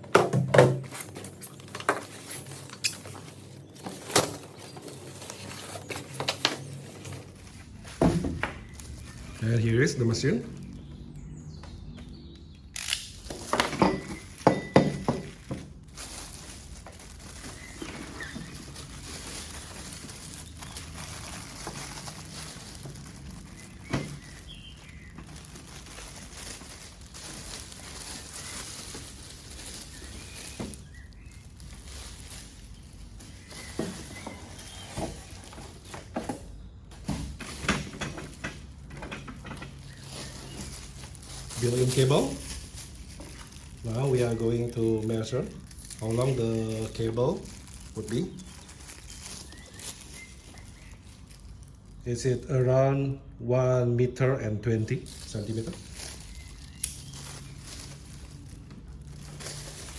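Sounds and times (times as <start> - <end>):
packing knocks and thunks: 0.0 - 9.4, 13.3 - 44.2.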